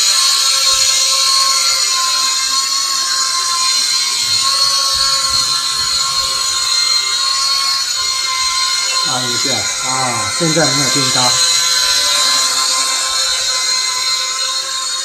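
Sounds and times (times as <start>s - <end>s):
toy quadcopter whine: 0.0s - 15.0s.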